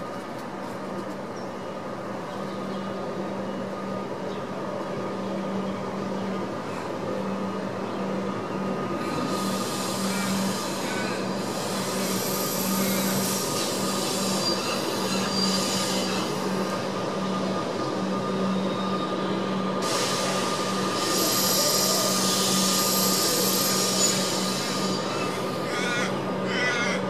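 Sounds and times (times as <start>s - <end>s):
train electrical hum: 0.0s - 27.0s
wheel and brake squeal: 9.1s - 16.5s, 18.4s - 26.0s.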